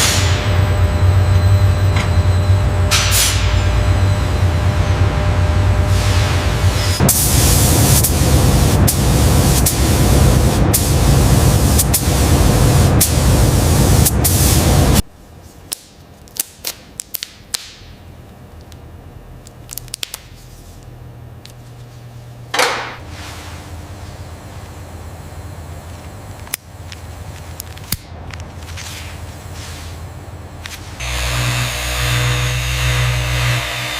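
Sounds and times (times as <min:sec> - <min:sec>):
low hum: 0:00.0 - 0:15.4, 0:17.8 - 0:33.9
loud spray-like hiss: 0:05.9 - 0:15.0.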